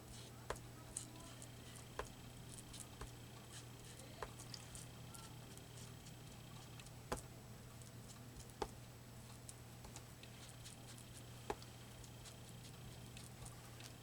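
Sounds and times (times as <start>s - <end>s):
steady low hum: 0.0s - 14.0s
faint ticks and taps: 0.5s - 3.2s, 5.2s - 8.8s, 11.5s - 12.2s.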